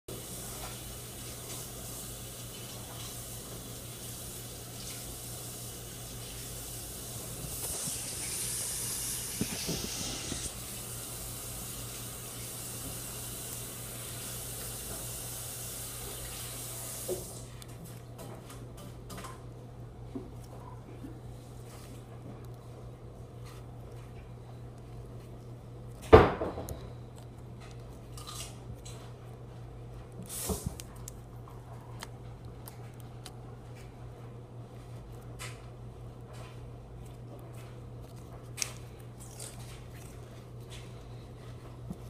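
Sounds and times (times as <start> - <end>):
water running: 0.1 - 17.6, 30.2 - 30.8.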